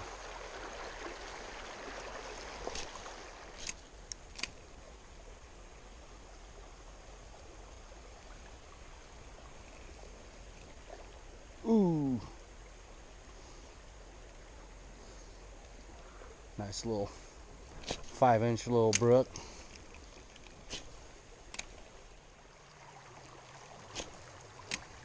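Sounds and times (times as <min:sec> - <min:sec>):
creek water running over rocks: 0:00.0 - 0:25.0
man exclaiming: 0:11.6 - 0:12.3.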